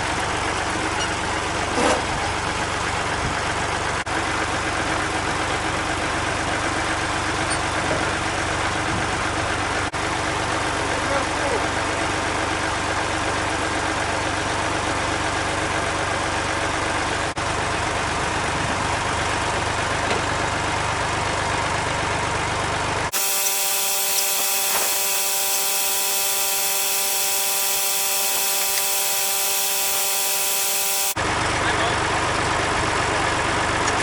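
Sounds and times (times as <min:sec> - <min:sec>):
engine running: 0:23.1 - 0:31.2
small electric motor whine: 0:23.1 - 0:31.2.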